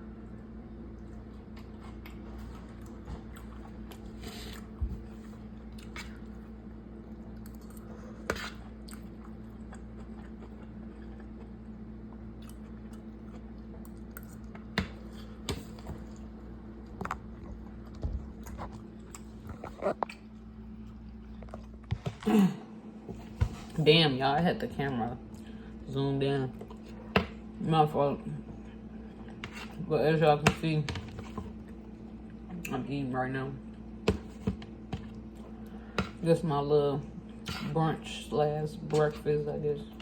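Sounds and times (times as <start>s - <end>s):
steady low hum: 0.0s - 40.0s
person chewing crunchy food: 0.8s - 22.3s.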